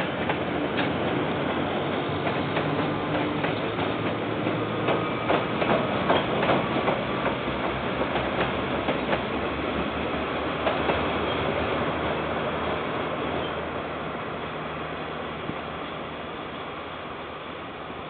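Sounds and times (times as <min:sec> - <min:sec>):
wheels clacking over rail joints: 0:00.0 - 0:12.0
freight train rumbling past: 0:00.0 - 0:18.0.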